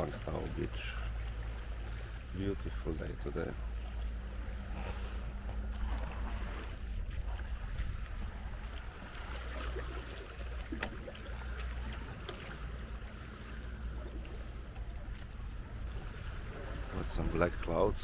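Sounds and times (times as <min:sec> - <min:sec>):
small waves washing on beach: 0:00.0 - 0:18.0
wind rumbling on microphone: 0:03.2 - 0:18.0
faint clicks: 0:10.7 - 0:16.3.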